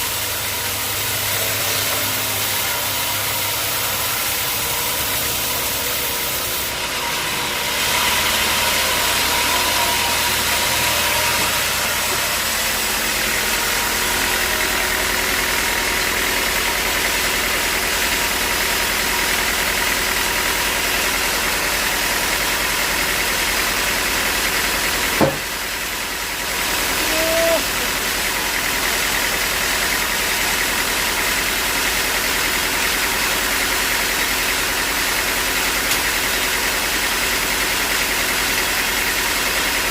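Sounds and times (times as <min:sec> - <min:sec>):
sawmill machinery droning: 0:00.0 - 0:39.9
sharp knock: 0:25.2 - 0:25.5.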